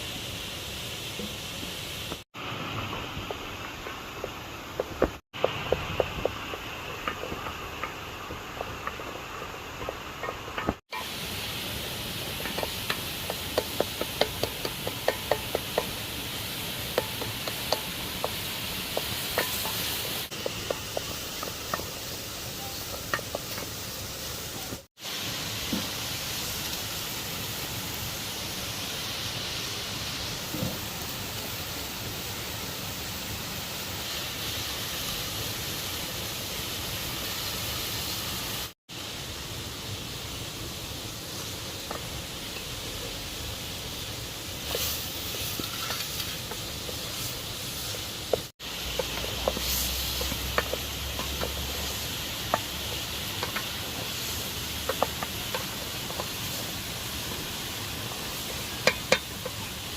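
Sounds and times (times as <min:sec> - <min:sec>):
utensil knocking on pot: 0:12.4 - 0:16.0.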